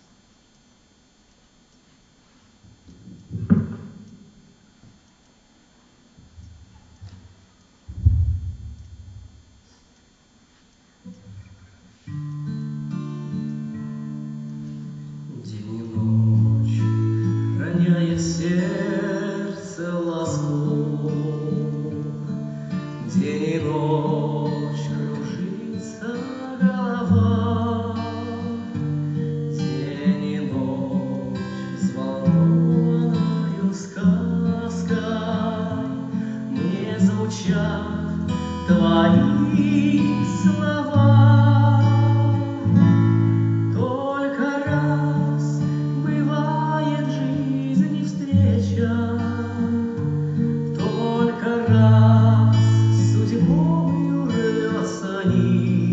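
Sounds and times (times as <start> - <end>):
song with guitar: 11.0 - 55.9
person singing: 15.3 - 22.3, 23.0 - 28.7, 29.6 - 42.7, 43.7 - 49.7, 50.8 - 55.9.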